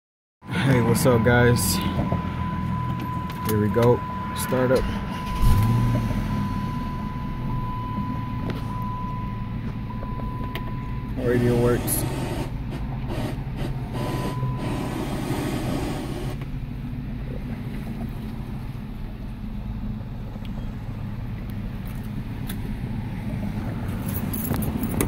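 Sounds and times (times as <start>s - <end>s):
car engine idling: 0.5s - 25.0s
hiss: 13.1s - 16.4s.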